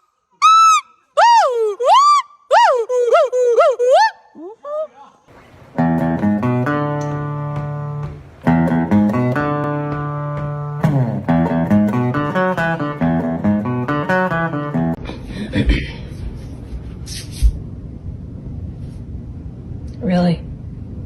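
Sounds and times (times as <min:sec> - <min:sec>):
plucked guitar music: 0:05.4 - 0:15.0.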